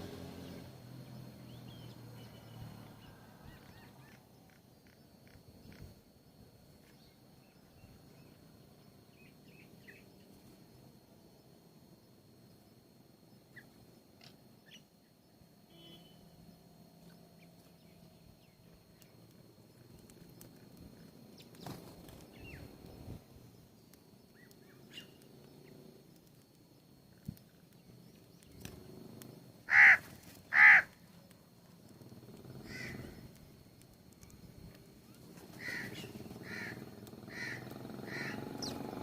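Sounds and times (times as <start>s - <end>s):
bird calling: 1.5s - 5.9s, 24.3s - 25.3s, 29.7s - 31.0s, 32.4s - 33.4s, 35.0s - 39.0s.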